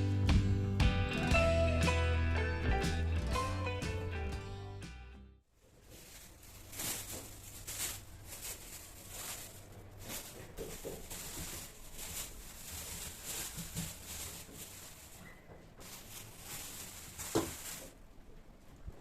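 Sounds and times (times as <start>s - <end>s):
plastic bags rustling: 5.6s - 18.7s.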